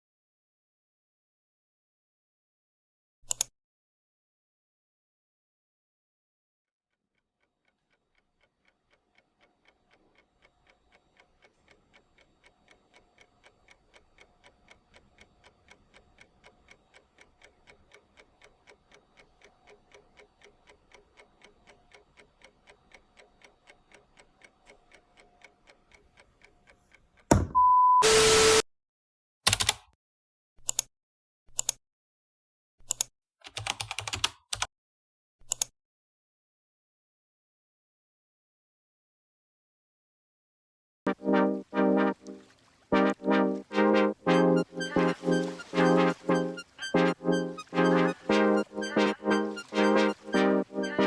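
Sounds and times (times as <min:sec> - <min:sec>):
clock ticking: 0:41.1 - 0:51.0.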